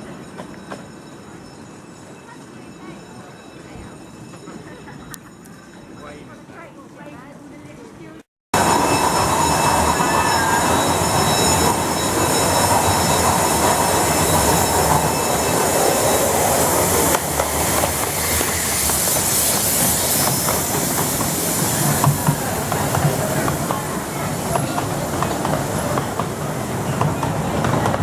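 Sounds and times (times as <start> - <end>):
train wheels rumbling on track: 8.6 - 28.0
thin high squeal: 8.7 - 17.2.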